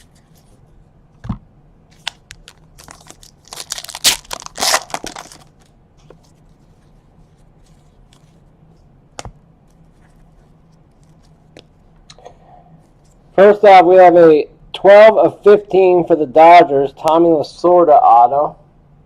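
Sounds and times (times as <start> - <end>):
wrapper tearing and crinkling: 2.0 - 5.6.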